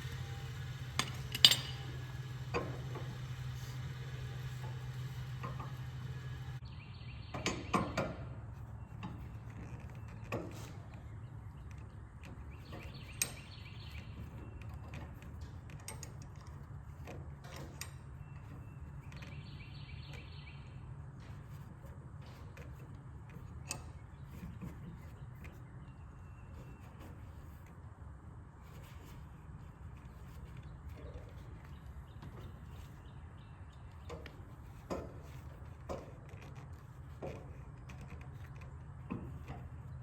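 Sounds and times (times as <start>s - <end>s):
steady low hum: 0.0s - 40.0s
metal parts clinking: 0.5s - 3.0s.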